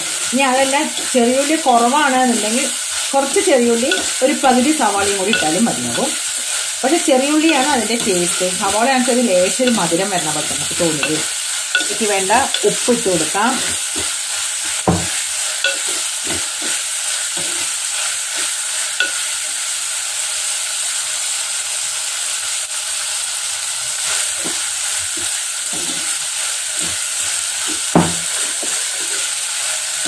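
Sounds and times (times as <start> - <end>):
food sizzling in hot oil: 0.0 - 30.0
spoon scraping pot: 0.2 - 19.2, 25.2 - 29.4
spoon knocking pot: 3.3 - 6.2, 7.0 - 16.8, 19.0 - 19.2, 27.7 - 28.8.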